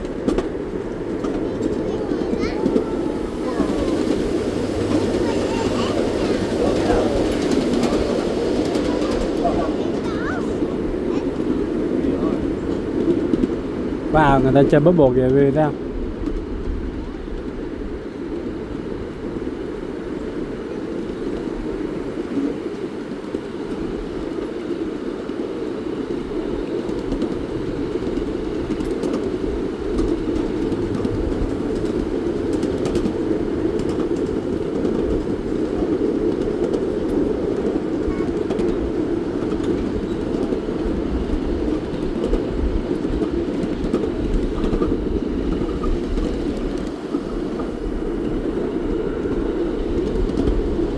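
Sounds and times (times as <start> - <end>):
train wheels rumbling on track: 0.0 - 50.9.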